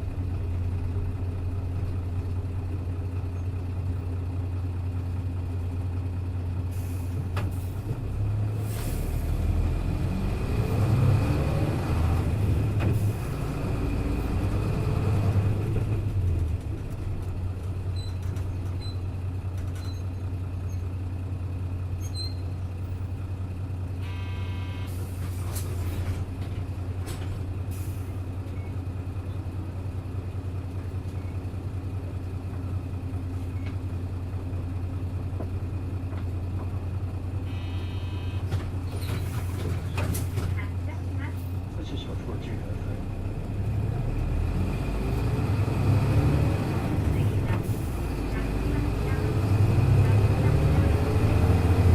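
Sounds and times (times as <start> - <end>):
bus diesel engine idling and revving: 0.0 - 51.9
short electronic beep: 24.0 - 24.9, 37.5 - 38.5.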